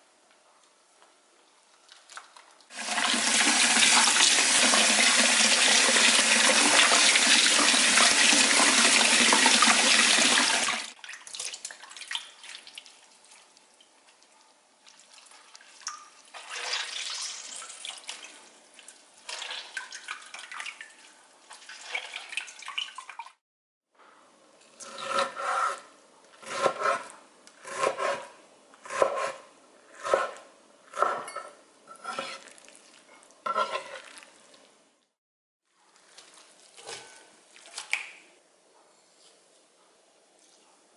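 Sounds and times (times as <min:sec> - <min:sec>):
kitchen tap water running: 0:02.7 - 0:11.7.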